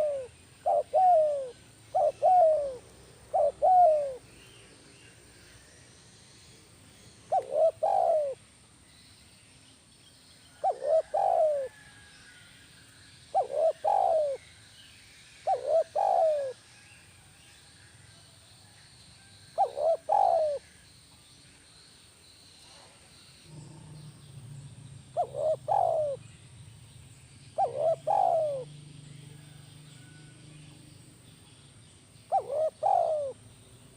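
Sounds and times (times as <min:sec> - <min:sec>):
dove cooing: 0:00.0 - 0:04.3, 0:07.3 - 0:08.4, 0:10.5 - 0:12.0, 0:13.3 - 0:14.4, 0:15.5 - 0:16.6, 0:19.6 - 0:20.7, 0:23.5 - 0:26.2, 0:27.6 - 0:28.7, 0:32.3 - 0:33.4.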